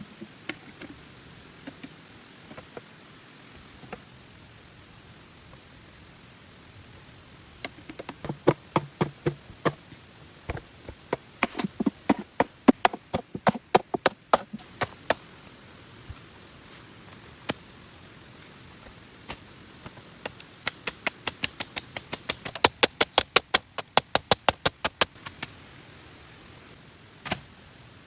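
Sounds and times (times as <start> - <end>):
rain hiss: 0.0 - 28.0
hand tool chopping wood: 7.9 - 15.3.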